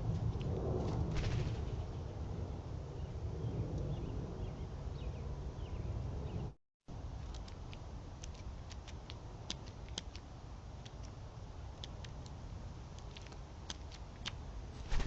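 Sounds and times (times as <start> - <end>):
animals feeding with light clicks: 7.1 - 14.4.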